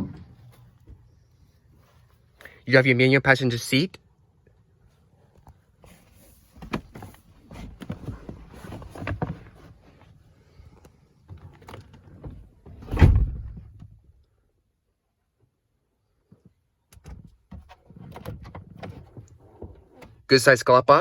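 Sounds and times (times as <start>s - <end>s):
seat clicking and rattling: 5.3s - 14.1s, 16.9s - 20.3s
seat heavy clunk: 11.4s - 13.9s.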